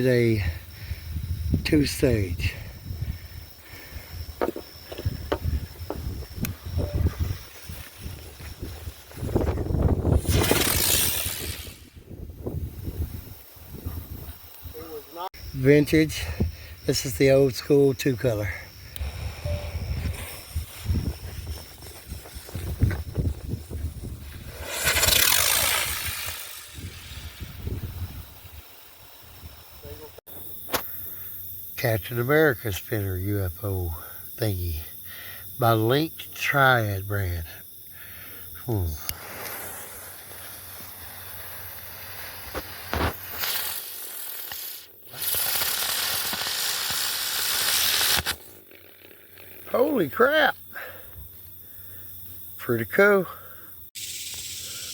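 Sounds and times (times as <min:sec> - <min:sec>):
firework hiss with falling whistle: 0:03.5 - 0:15.3, 0:18.9 - 0:31.2, 0:38.1 - 0:50.4, 0:53.9 - 0:54.9
firework pops: 0:09.2 - 0:11.9, 0:19.8 - 0:27.6, 0:30.6 - 0:30.9, 0:40.8 - 0:48.6.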